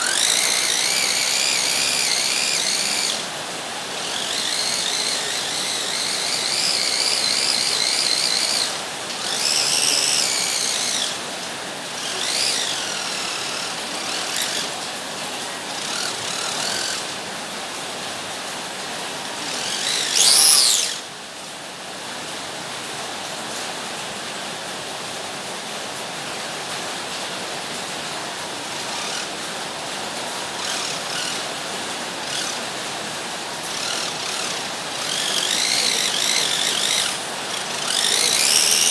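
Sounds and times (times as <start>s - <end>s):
wheels rolling: 0.0s - 17.2s, 19.2s - 21.0s, 30.2s - 38.9s
toy car motors whining: 0.0s - 17.3s, 19.2s - 21.1s, 28.5s - 38.9s.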